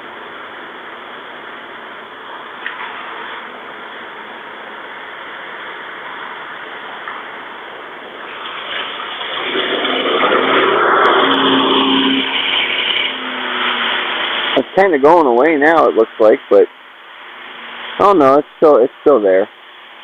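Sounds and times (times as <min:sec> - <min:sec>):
steady rushing noise: 0:00.0 - 0:20.0
vehicle passing close by: 0:09.3 - 0:14.6.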